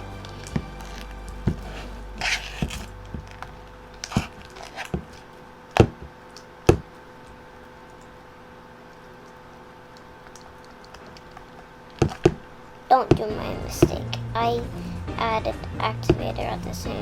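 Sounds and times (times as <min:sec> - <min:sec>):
faint steady hum: 0:00.0 - 0:17.0
taps and knocks of handling: 0:12.0 - 0:12.4.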